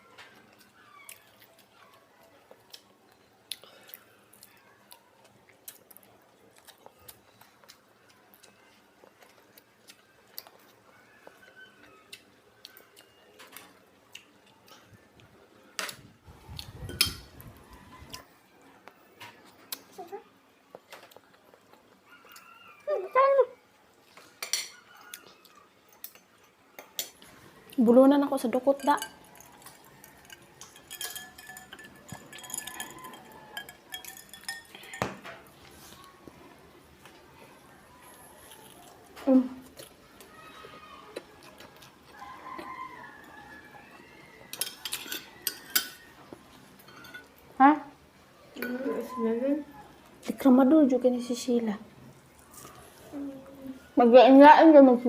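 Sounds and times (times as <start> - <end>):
spoons clinking against plates: 16.8 - 17.3, 24.4 - 24.9, 28.5 - 35.6, 44.5 - 47.4, 48.6 - 49.1.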